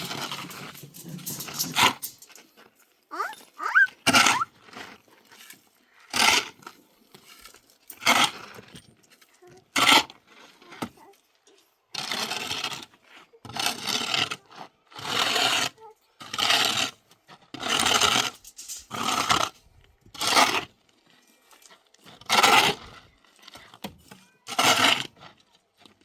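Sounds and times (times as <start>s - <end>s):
tool scraping mortar: 0.0s - 11.2s, 11.9s - 20.9s, 21.5s - 26.0s
gliding cry: 3.1s - 4.5s.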